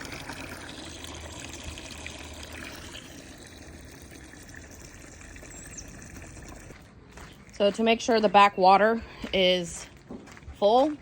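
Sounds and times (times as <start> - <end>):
water running and trickling: 0.0 - 6.8.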